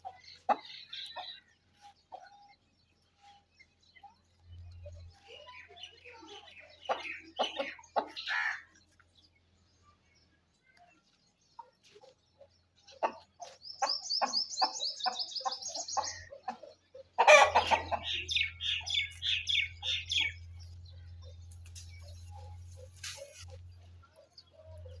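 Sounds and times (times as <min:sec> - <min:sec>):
chickens clucking: 0:00.0 - 0:09.1, 0:11.4 - 0:25.0
chicken squawk: 0:17.2 - 0:18.8.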